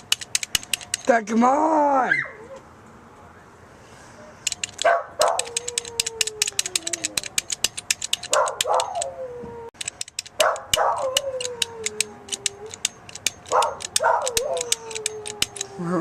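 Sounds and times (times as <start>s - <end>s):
dog barking: 4.8s - 5.7s, 8.3s - 9.1s, 10.4s - 11.2s, 13.5s - 14.8s
dog howling: 4.9s - 7.4s, 8.3s - 9.8s, 10.5s - 12.9s, 13.5s - 16.0s.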